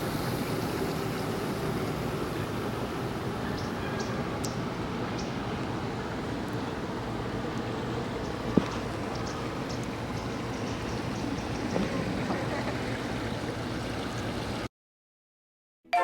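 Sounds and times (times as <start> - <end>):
steady rushing noise: 0.0 - 12.2.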